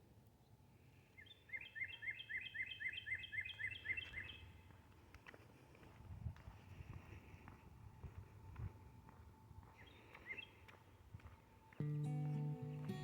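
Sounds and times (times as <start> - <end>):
faint outdoor background noise: 0.0 - 13.0
songbird singing: 0.4 - 4.8, 9.6 - 13.0.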